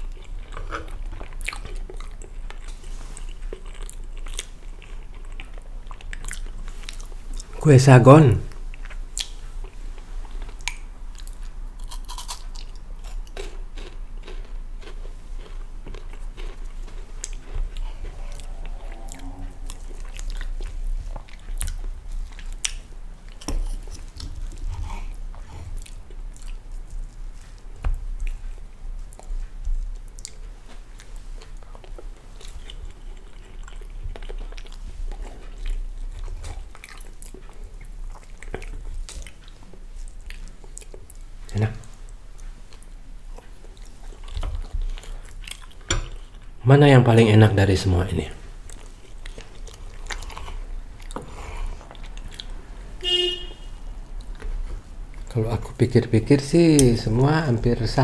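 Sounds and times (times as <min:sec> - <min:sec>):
crunchy chewing and biting: 0:08.7 - 0:28.6.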